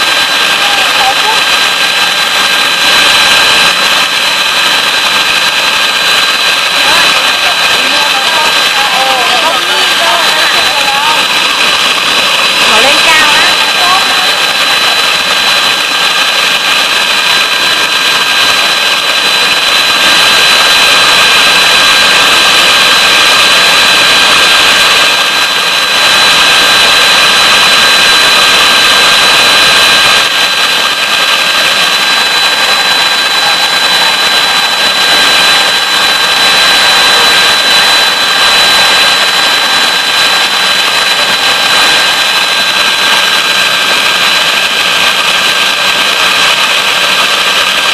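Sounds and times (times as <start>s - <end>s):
electric mixer motor whine: 0.0s - 47.9s.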